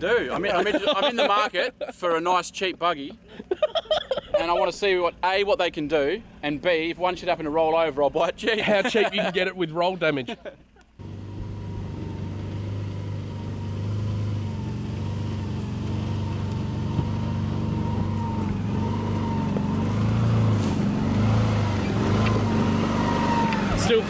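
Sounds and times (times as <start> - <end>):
vehicle engine running at low revs: 11.0 - 24.0.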